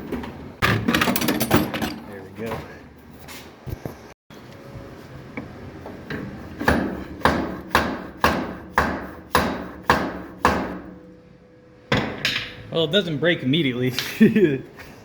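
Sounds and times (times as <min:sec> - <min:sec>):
hammer striking steel: 0:06.6 - 0:11.2.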